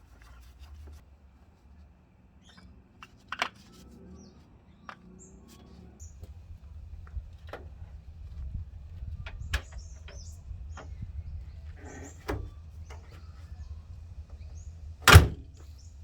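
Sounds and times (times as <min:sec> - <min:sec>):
low steady hum: 0:06.0 - 0:16.0
light clicks and knocks: 0:06.2 - 0:13.5.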